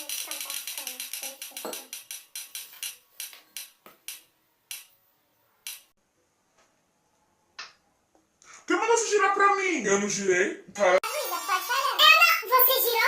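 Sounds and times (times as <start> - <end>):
roulette wheel ticking: 0.0 - 4.9.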